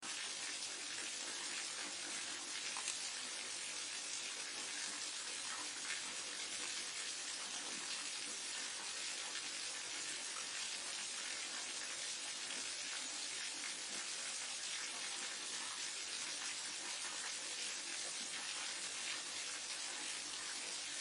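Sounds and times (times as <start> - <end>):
small water splashes: 0.0 - 21.0.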